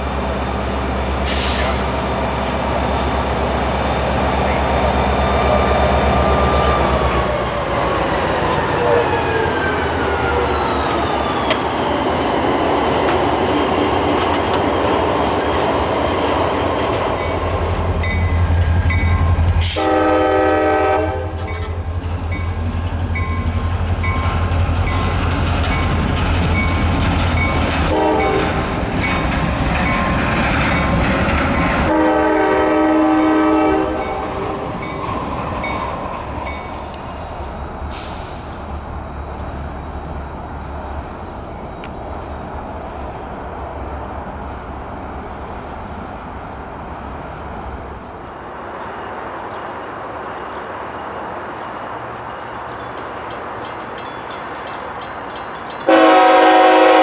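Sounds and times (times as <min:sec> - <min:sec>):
diesel locomotive engines rumbling: 0:00.0 - 0:57.0
train air horn blasts: 0:19.6 - 0:21.6, 0:27.9 - 0:28.6, 0:31.8 - 0:34.6, 0:55.9 - 0:57.0.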